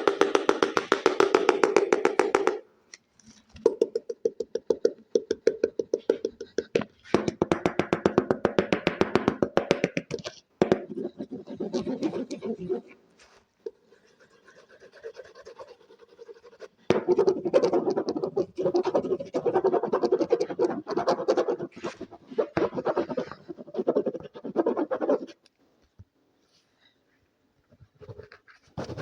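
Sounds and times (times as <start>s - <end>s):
rapid scratching on a surface: 10.0s - 25.5s, 28.0s - 29.0s.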